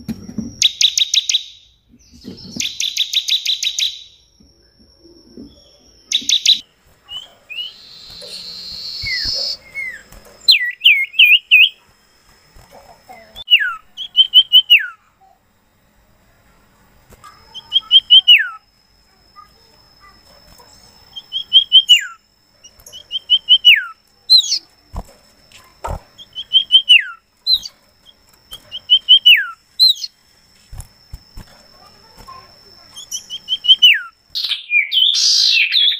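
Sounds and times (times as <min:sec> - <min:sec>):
faint steady high tone: 0:00.0 - 0:34.3
songbird whistling: 0:00.6 - 0:11.8, 0:13.1 - 0:15.0, 0:17.5 - 0:18.7, 0:19.4 - 0:24.7, 0:26.2 - 0:30.2, 0:32.9 - 0:35.9.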